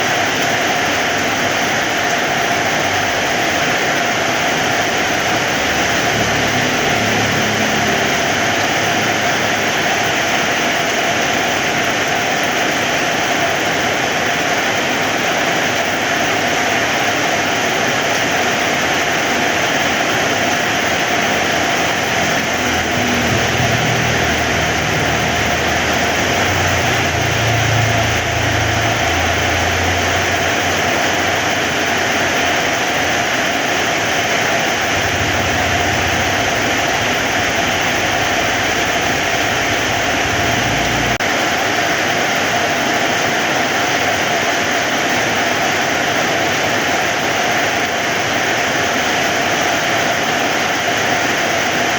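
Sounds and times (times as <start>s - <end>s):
heavy rain falling: 0.0s - 51.9s
low rumble: 21.3s - 31.4s, 34.7s - 41.2s.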